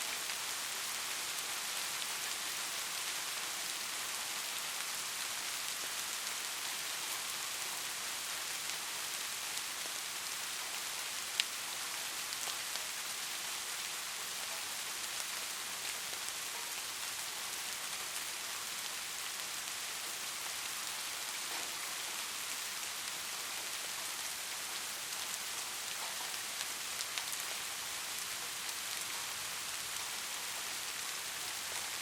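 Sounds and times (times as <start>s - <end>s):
steady rain hiss: 0.0s - 32.0s.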